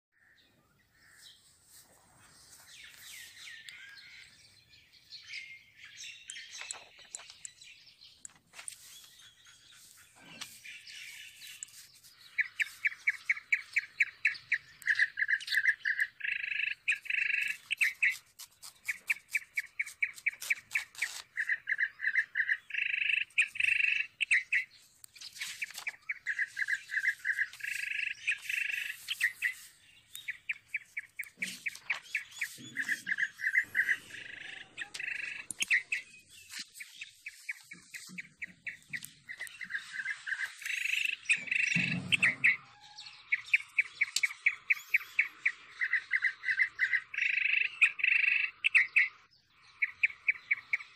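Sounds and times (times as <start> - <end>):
birds chirping: 0.1 - 50.9
bird fast trills: 8.8 - 49.2.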